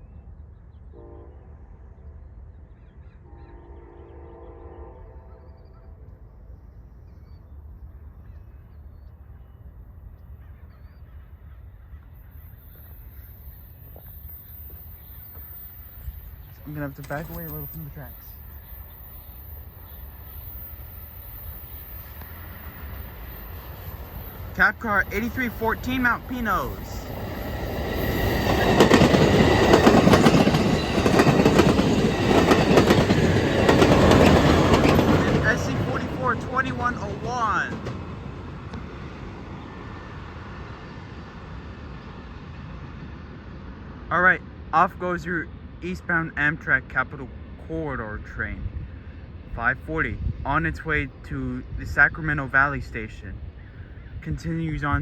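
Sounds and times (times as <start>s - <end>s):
faint bird chirps: 0.0s - 24.5s
train cars rolling on rails: 7.9s - 44.0s.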